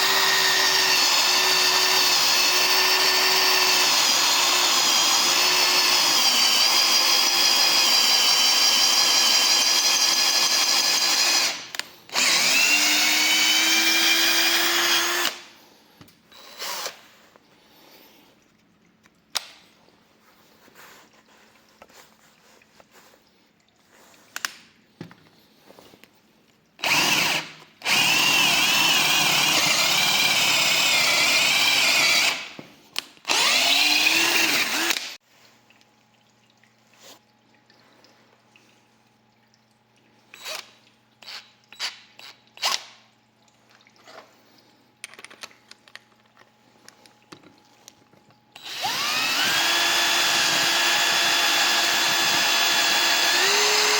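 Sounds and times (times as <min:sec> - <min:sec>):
cordless drill running: 0:00.0 - 0:15.4, 0:16.4 - 0:17.0, 0:26.8 - 0:32.6, 0:33.3 - 0:35.2, 0:48.6 - 0:53.9
small clicks and handling knocks: 0:45.0 - 0:48.4.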